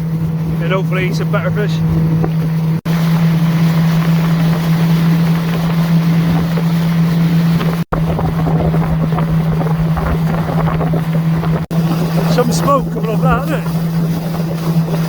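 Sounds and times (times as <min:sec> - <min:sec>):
boat engine running: 0:00.0 - 0:15.0
water: 0:00.0 - 0:15.0
wind on microphone: 0:01.7 - 0:02.8, 0:05.5 - 0:15.0.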